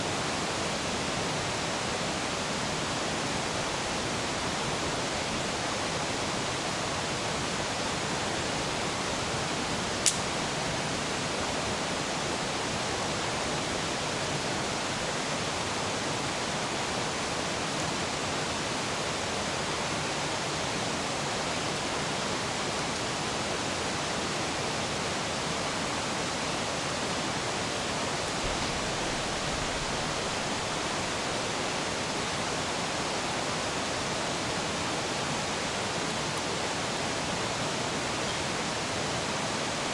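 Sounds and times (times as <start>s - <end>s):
mountain river rushing: 0.0s - 39.9s
sharp click: 10.0s - 10.3s.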